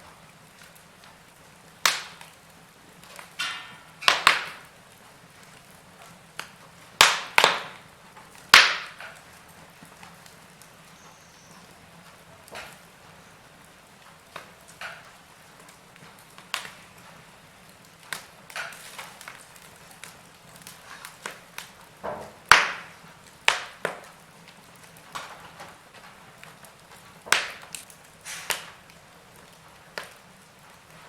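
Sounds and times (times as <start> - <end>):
wood fire crackling and popping: 0.0 - 31.0
faint hiss: 27.6 - 31.0.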